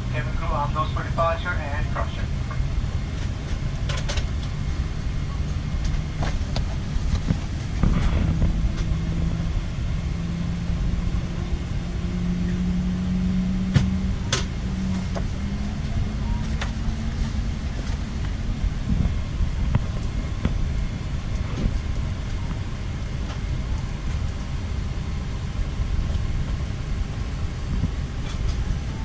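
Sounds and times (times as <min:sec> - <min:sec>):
jet cabin rumble: 0:00.0 - 0:29.0
hum rising in pitch: 0:01.8 - 0:29.0.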